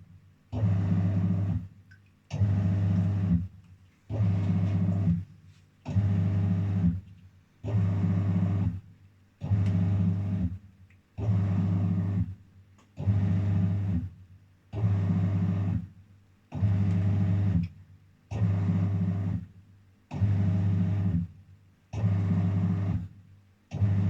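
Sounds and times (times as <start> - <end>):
washing machine motor humming: 4.1 - 5.2.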